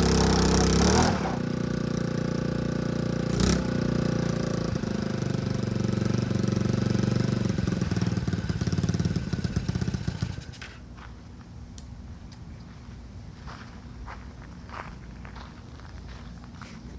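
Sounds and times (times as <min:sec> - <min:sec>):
small engine running: 0:00.0 - 0:10.8.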